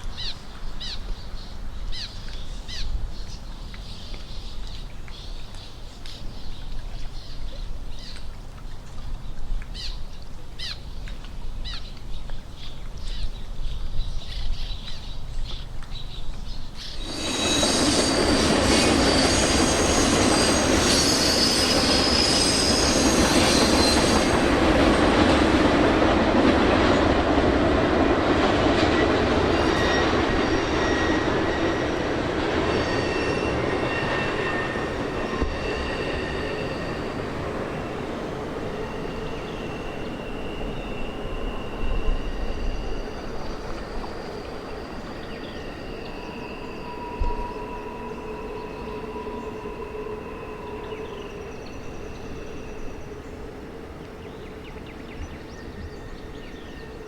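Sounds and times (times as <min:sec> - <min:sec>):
train rumble: 0:09.7 - 0:57.0
train wheels squealing: 0:16.7 - 0:57.0.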